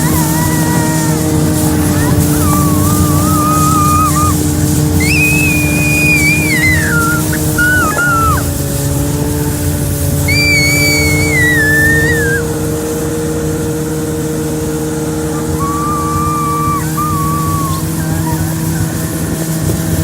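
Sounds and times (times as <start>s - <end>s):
high wavering tone: 0.0s - 8.5s, 10.3s - 12.4s, 15.2s - 18.8s
snowmobile engine running: 0.0s - 20.0s.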